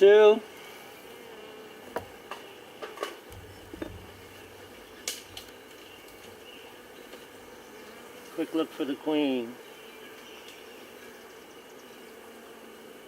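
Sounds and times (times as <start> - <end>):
honeybees buzzing: 0.2 - 13.0
wooden hive frame knocking: 1.9 - 2.6, 3.3 - 7.6.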